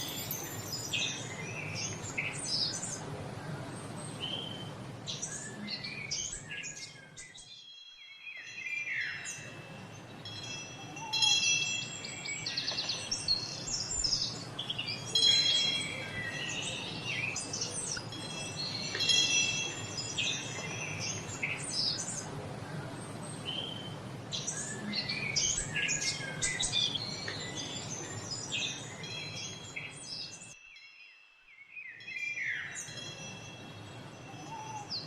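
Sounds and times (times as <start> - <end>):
chimes ringing: 0.0 - 1.8, 9.4 - 12.7, 15.2 - 17.0, 18.0 - 21.0, 30.5 - 34.9
birds chirping and singing: 0.0 - 35.0
low background hiss: 0.0 - 35.0.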